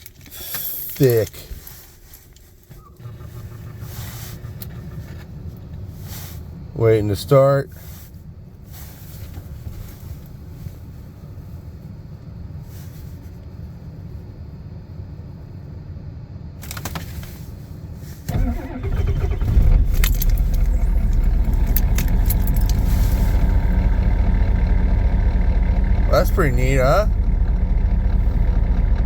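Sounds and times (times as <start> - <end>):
diesel engine cranking and running: 0.0 - 6.5, 18.3 - 29.0
low steady rumble: 0.0 - 29.0.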